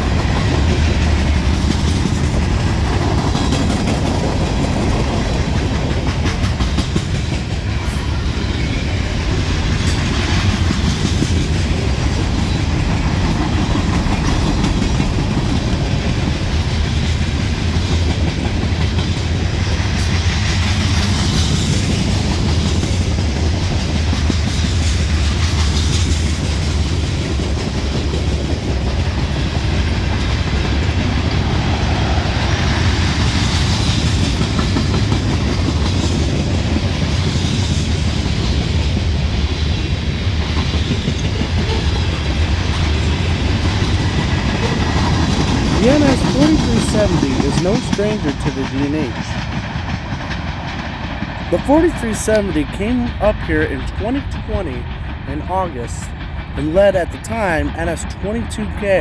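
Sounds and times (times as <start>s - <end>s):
wheels clacking over rail joints: 0.0s - 45.8s
freight train cars rumbling: 0.0s - 59.0s.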